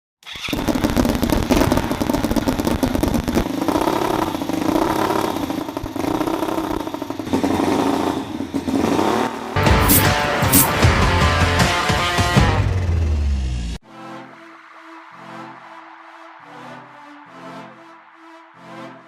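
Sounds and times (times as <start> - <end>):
small petrol engine revving: 0.2 - 10.8
rock music: 9.6 - 15.7.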